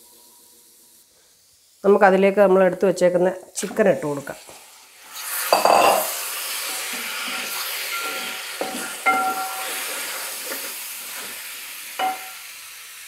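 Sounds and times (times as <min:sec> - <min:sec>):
chicken sizzling in pot: 0:00.0 - 0:13.0
wooden spoon stirring: 0:06.7 - 0:11.4
spoon knocking against pot: 0:07.9 - 0:09.6, 0:12.0 - 0:12.4.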